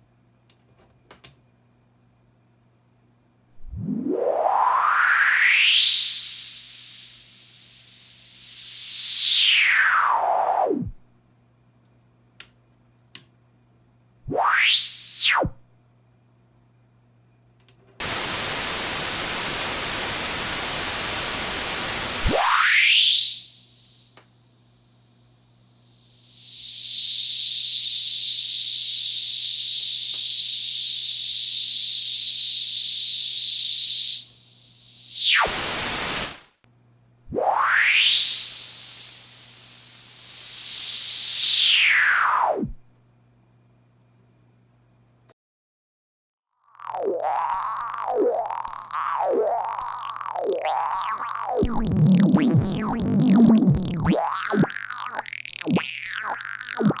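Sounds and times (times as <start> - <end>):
filtered noise hiss: 18.0 - 22.4, 35.4 - 36.5
hissing resonant filter sweep: 18.0 - 24.6, 46.8 - 57.0.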